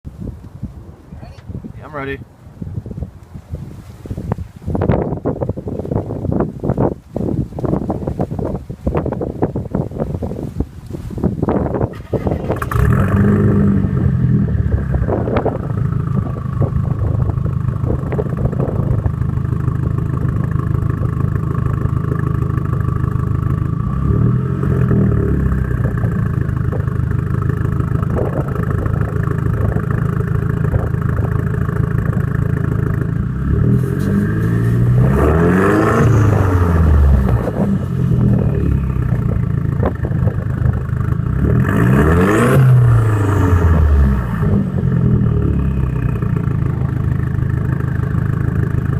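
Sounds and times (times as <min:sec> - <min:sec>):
car engine idling loudly: 0:12.0 - 0:48.9
car engine revving: 0:12.0 - 0:48.9.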